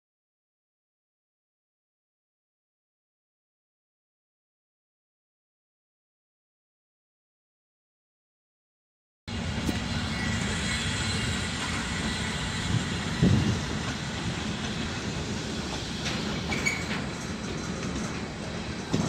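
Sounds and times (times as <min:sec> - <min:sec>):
freight train rolling on rails: 0:09.3 - 0:19.0
faint wheel squeals: 0:16.3 - 0:17.1.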